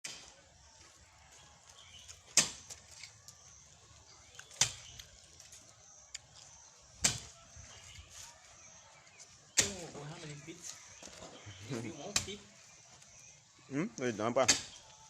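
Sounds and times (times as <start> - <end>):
digging tool striking ground: 0.0 - 0.4, 2.2 - 2.9, 4.4 - 5.0, 7.0 - 7.4, 9.5 - 10.0, 14.4 - 14.9.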